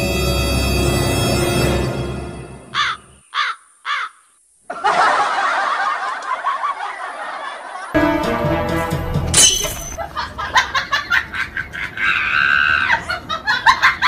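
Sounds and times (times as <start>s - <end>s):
music: 0.0s - 2.8s, 8.0s - 9.7s
crow cawing: 2.8s - 4.4s.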